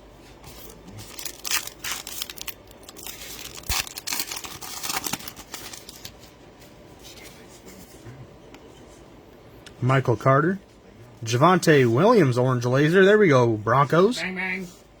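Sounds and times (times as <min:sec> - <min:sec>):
card wrappers crinkling: 0:00.5 - 0:06.4.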